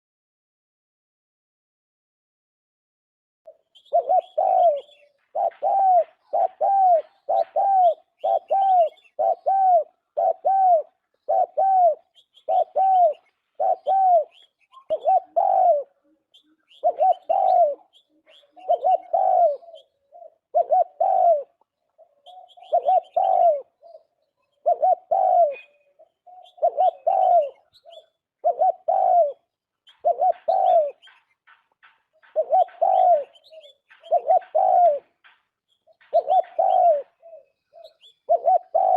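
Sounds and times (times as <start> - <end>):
dove cooing: 3.5 - 38.9
faint small bird chirps: 12.0 - 15.2, 16.0 - 20.5, 21.9 - 24.8, 25.5 - 28.3, 33.3 - 34.3, 35.6 - 38.9.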